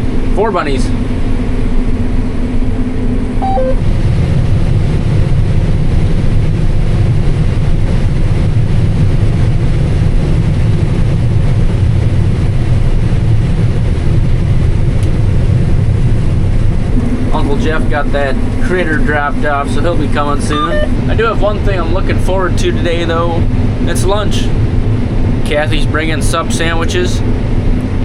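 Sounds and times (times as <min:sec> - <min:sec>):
combine harvester drone: 0:00.0 - 0:28.0
short tones: 0:03.4 - 0:03.8.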